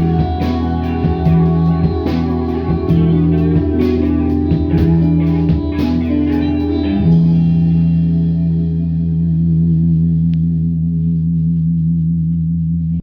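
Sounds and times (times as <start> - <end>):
rock band instrumental: 0.0 - 10.1
electric guitar chords: 0.0 - 13.0.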